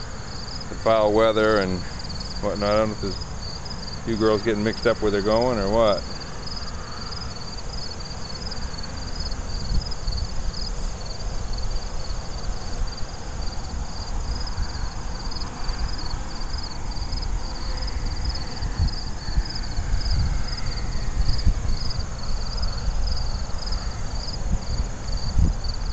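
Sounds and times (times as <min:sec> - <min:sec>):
crickets chirping: 0:00.0 - 0:25.9
wind rumble on microphone: 0:00.0 - 0:25.9.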